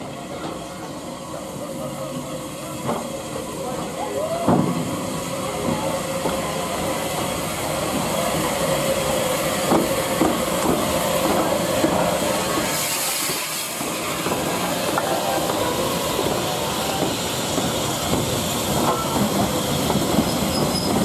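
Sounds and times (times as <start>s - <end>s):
steam hissing: 0.0s - 21.0s
train wheels clanking: 9.5s - 21.0s.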